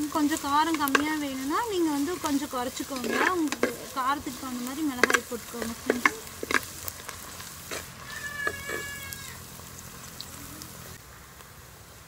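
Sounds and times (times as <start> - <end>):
onions sizzling in oil: 0.0 - 12.0
metal ladle scraping a pot: 2.2 - 4.0, 5.0 - 6.7, 7.4 - 8.9.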